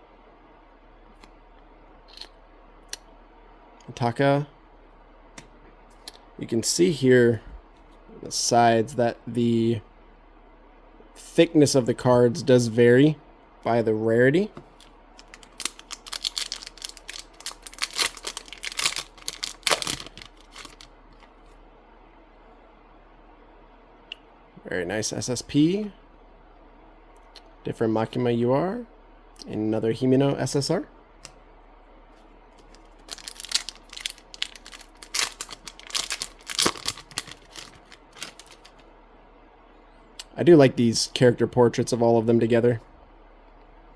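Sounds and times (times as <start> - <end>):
foil wrapper crinkling and tearing: 14.8 - 21.3, 32.6 - 38.8.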